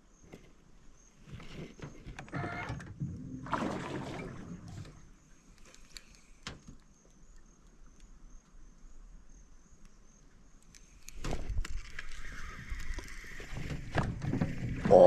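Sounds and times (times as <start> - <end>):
rustling and splashing water: 2.9 - 7.8, 10.9 - 15.0
insect chirring: 5.0 - 13.8
fishing reel whirring: 11.8 - 13.6.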